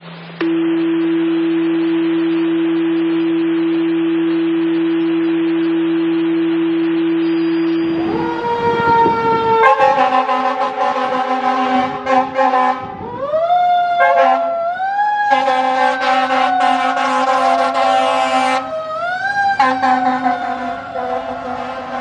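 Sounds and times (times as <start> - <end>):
siren: 0.0 - 22.0
fire truck air horn blasts: 8.0 - 13.0, 14.0 - 14.5, 15.3 - 18.7, 19.5 - 22.0.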